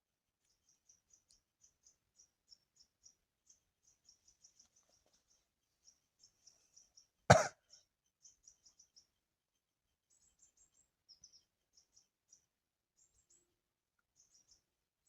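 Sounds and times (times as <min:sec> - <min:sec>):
small birds chirping faintly: 0:00.2 - 0:15.0
short loud cough-like burst: 0:07.3 - 0:07.5.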